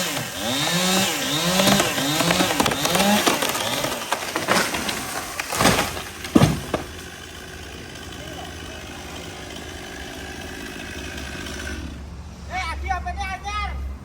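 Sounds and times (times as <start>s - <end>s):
chainsaw cutting wood: 0.0s - 12.0s
loud cracking impacts: 1.3s - 7.3s.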